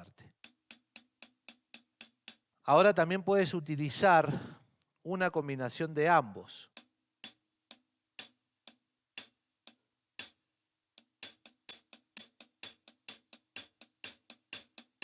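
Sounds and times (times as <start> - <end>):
hi-hat struck with drumstick: 0.0 - 2.6, 6.7 - 15.0.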